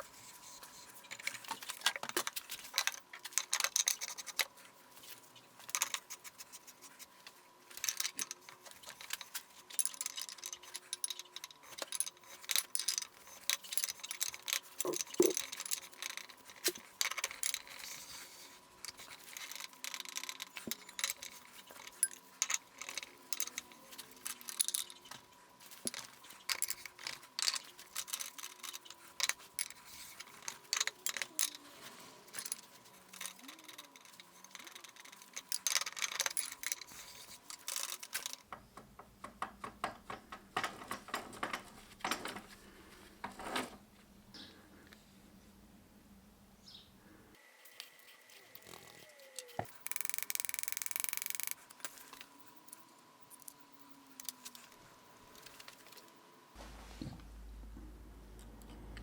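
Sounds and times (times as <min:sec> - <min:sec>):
metal tools clinking and tapping: 0:07.8 - 0:18.0, 0:18.8 - 0:31.6
steady low hum: 0:51.6 - 0:59.0.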